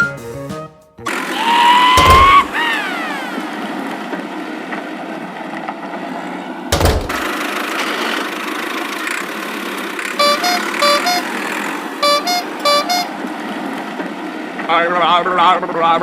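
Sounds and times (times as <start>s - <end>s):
cartoon vehicle engine running: 1.0s - 4.4s, 8.7s - 13.1s
horn tooting two-pitch beeps: 10.2s - 11.4s, 12.0s - 13.1s.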